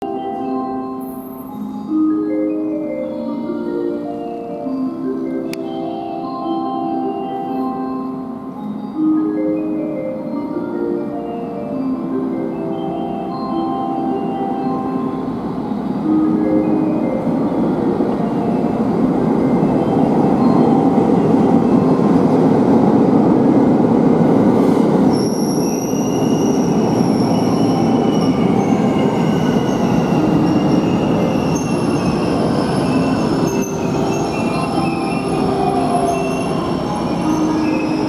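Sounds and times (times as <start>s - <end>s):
electric train running: 11.9s - 38.0s
train brake squeal: 25.1s - 38.0s.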